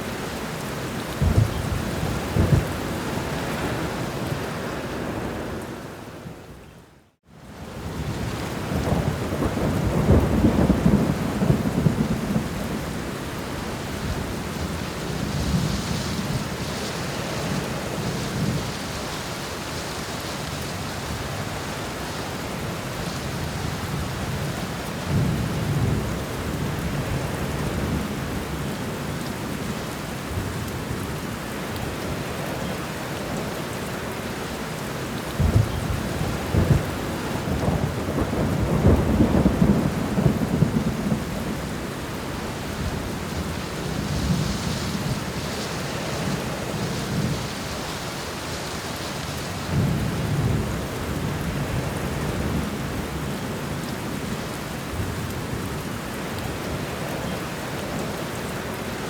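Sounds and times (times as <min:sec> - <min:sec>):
steady rainfall: 0:00.0 - 0:59.0
rolling thunder: 0:01.1 - 0:04.0, 0:07.9 - 0:13.0, 0:35.4 - 0:41.9.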